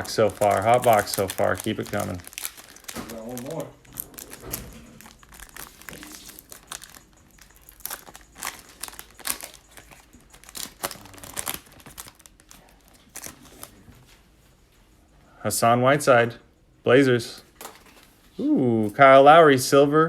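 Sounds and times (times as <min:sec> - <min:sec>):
foil wrapper crinkling and tearing: 0:00.0 - 0:13.8.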